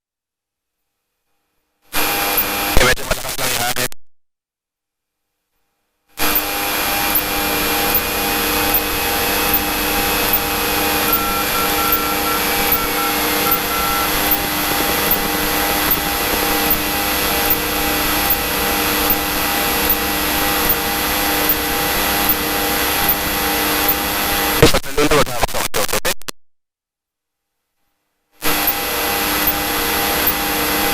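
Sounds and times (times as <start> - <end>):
aircraft engine and propeller: 14.3 - 24.4.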